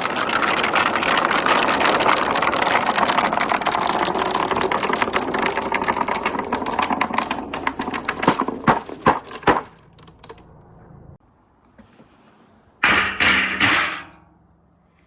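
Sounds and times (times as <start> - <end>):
marbles clattering down a track: 0.0 - 9.4.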